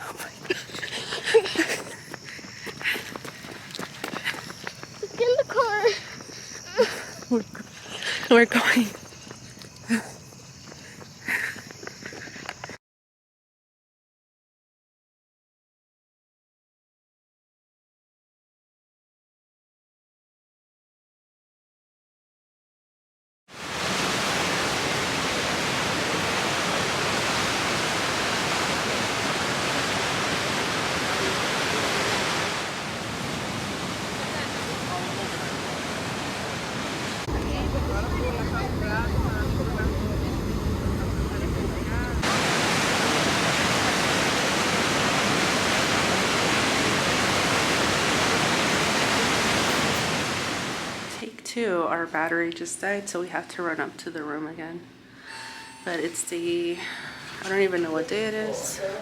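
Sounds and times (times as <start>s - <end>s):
waterfall rushing: 23.6s - 51.2s.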